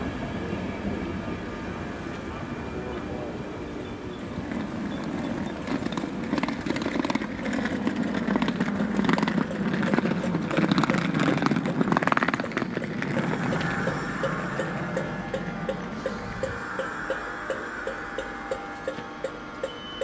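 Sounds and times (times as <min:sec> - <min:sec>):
train wheels rumbling on rails: 0:00.0 - 0:20.0
wheel clicks and clatter: 0:04.4 - 0:16.5.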